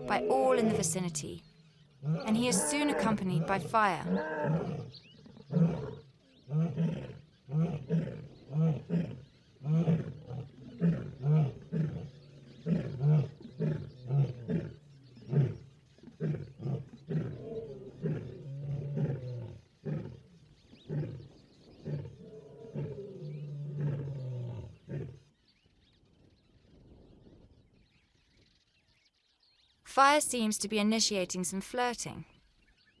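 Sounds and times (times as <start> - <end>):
distant lion roars: 0.0 - 0.9, 1.6 - 25.3
lions roaring and grunting: 0.0 - 1.1, 1.9 - 25.3.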